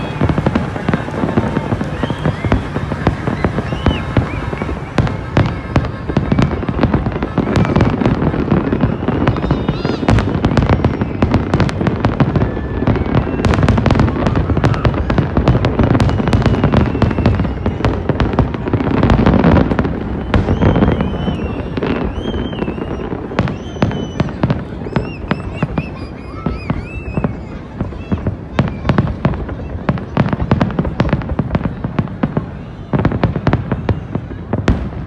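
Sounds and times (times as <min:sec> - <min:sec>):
fireworks bangs and crackling: 0:00.0 - 0:35.0
fireworks whistling: 0:00.0 - 0:35.0.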